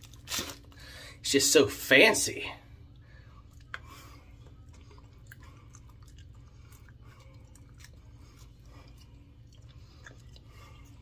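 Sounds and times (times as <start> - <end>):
person chewing soap: 2.8 - 11.0.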